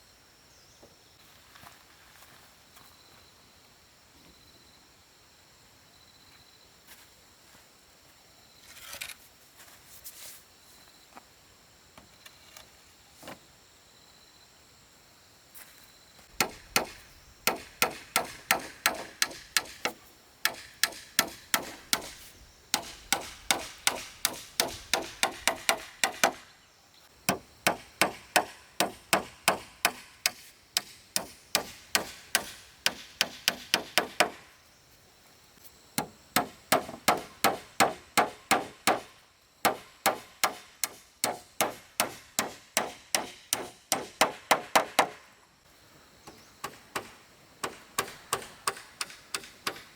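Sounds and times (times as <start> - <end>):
hammer driving nails into wood: 16.4 - 26.5, 27.3 - 34.5, 36.0 - 45.2, 46.6 - 49.9.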